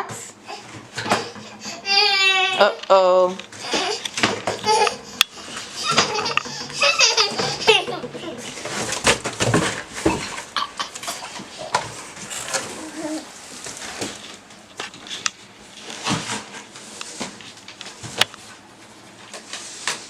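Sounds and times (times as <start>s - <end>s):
knocks scrapes and rustles: 3.4s - 18.2s
toddler babbling: 12.7s - 13.3s.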